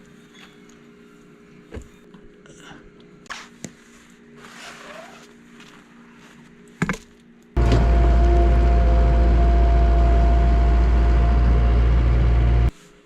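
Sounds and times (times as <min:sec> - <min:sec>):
engine idling: 0:07.6 - 0:12.7.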